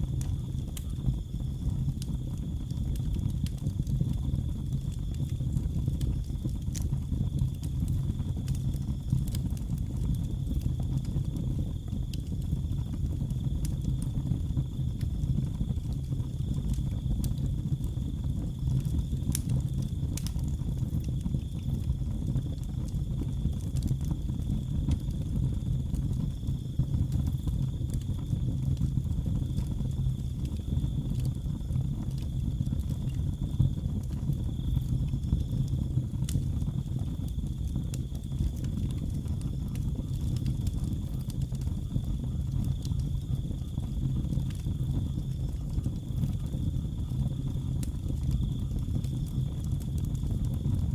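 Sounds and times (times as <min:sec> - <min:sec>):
fire low rumble: 0:00.0 - 0:50.9
cricket trilling: 0:36.6 - 0:50.8.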